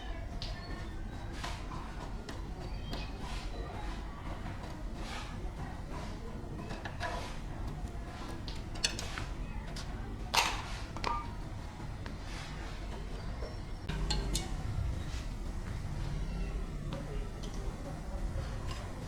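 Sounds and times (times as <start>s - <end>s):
low background rumble: 13.8s - 19.0s
ringing metal clank: 13.9s - 14.8s.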